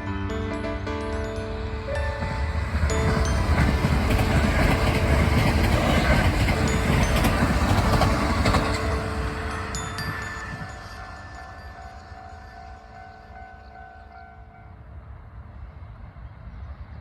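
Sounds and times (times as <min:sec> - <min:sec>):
electric train rumbling past: 0:00.0 - 0:17.0
wheels clacking over rails: 0:02.2 - 0:11.3.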